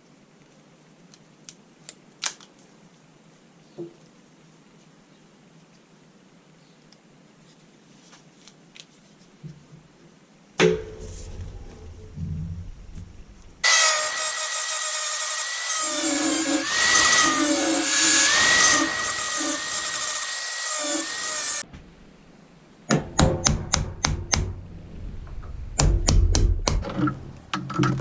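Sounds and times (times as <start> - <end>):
power tool whining: 13.6 - 21.6
sharp knocks and scrapes: 16.2 - 20.3, 26.8 - 28.0.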